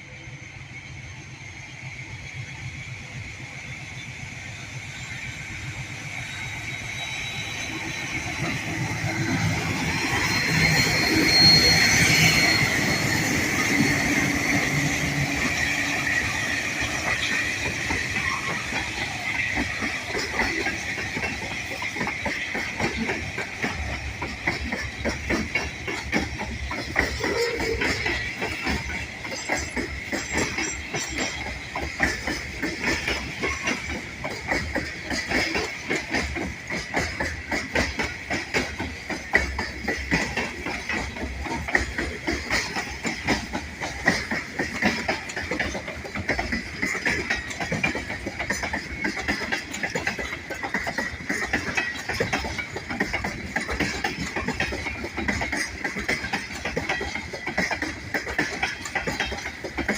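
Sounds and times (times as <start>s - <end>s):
train wheels clacking over rail joints: 1.6s - 59.9s.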